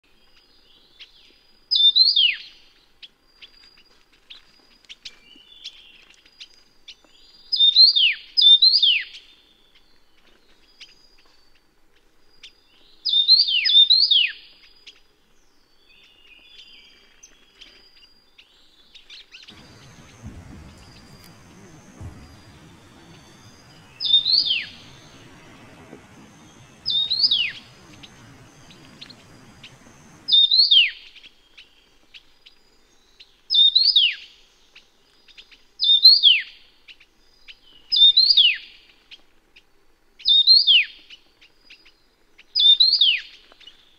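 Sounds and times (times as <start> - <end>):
faint bird chirps: 19.5 - 30.8
bird singing high phrases: 19.5 - 31.0.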